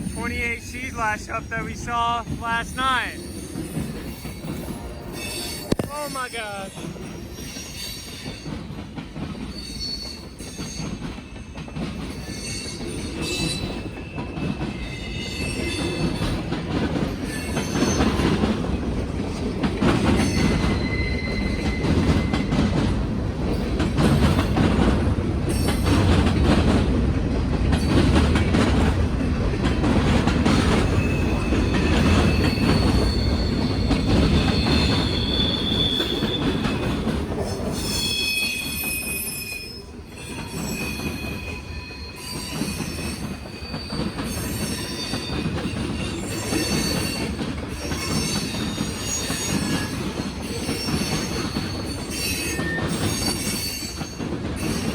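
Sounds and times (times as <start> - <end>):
high squeals of wheels: 3.2 - 5.8, 6.7 - 8.6, 9.4 - 11.2, 20.0 - 22.9, 30.8 - 54.9
wheels clacking over rails: 10.1 - 38.8.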